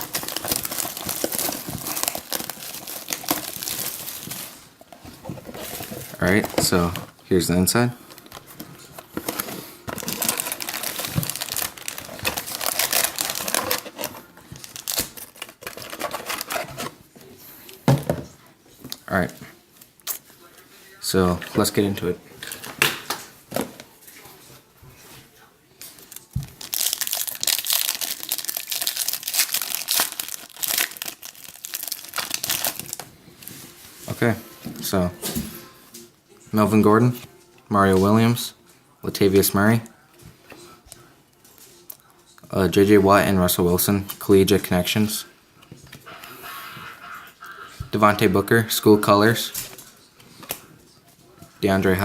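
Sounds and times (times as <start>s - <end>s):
card pack wrappers crinkling: 0.0s - 17.0s, 25.8s - 33.1s.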